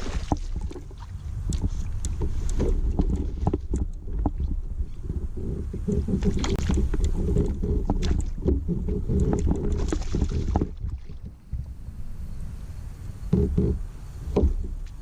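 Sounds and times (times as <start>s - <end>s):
water splashes: 0.0s - 5.2s, 5.8s - 11.8s
kayak knocking on water: 0.0s - 11.7s, 13.4s - 14.9s.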